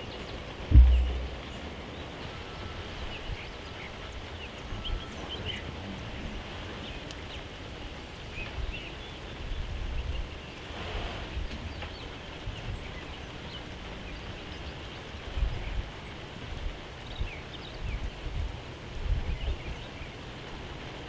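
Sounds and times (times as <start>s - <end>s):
outdoor background hiss: 0.0s - 21.0s
low rumbles on microphone: 0.6s - 2.3s.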